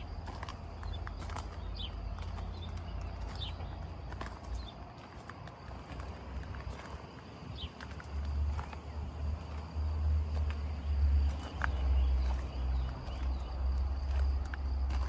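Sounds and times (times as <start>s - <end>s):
high insect trill: 0.0s - 15.0s
footsteps clicking: 0.1s - 15.0s
bird chirps: 0.8s - 3.8s.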